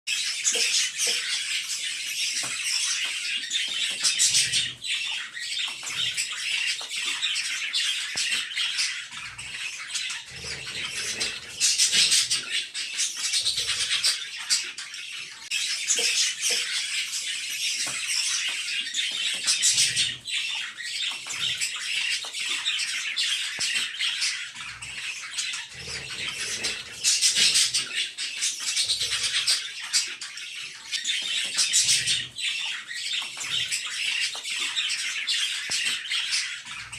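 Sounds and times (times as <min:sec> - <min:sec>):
budgerigar chicks begging calls: 0:08.9 - 0:17.0, 0:17.9 - 0:36.9.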